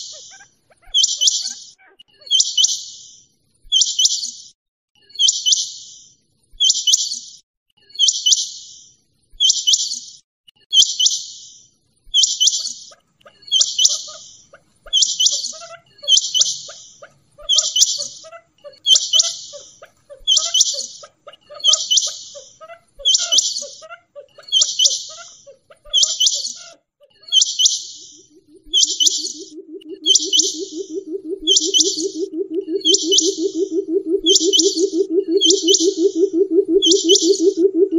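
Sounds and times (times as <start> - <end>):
quail calling: 0.0 - 2.7, 12.2 - 37.9
faint low chirps: 27.2 - 37.9.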